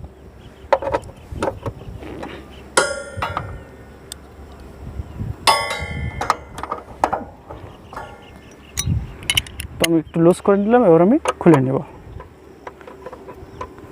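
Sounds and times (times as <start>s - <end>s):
metal hand tools clanking: 2.8s - 3.8s, 5.4s - 10.0s
loud ringing metal clangs: 2.8s - 4.0s, 5.4s - 9.5s.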